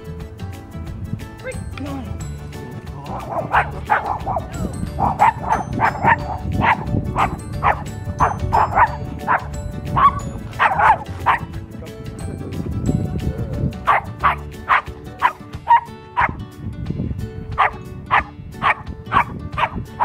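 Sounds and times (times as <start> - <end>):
background music: 0.0 - 20.0
dog barking and yipping: 3.1 - 11.5, 13.8 - 16.4, 17.6 - 20.0.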